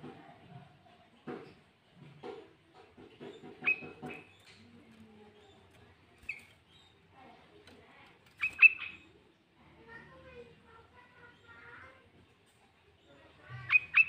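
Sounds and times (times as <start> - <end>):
bird chirping: 3.2 - 9.3, 12.6 - 14.0.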